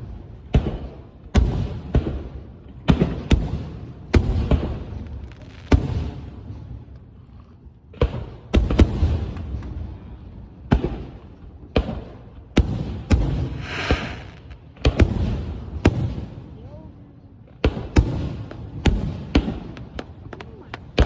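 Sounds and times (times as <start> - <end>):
firework bangs: 10.6 - 16.4, 17.6 - 21.0.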